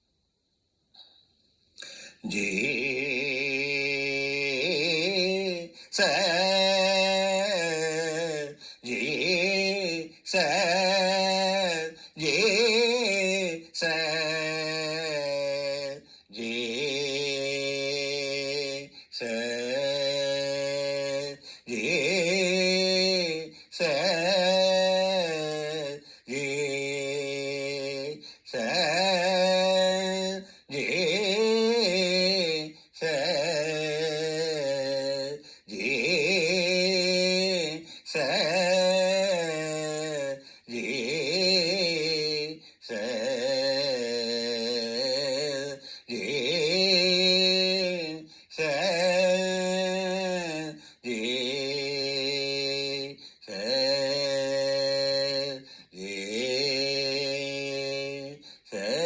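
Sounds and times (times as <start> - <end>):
man chanting: 1.8 - 59.0.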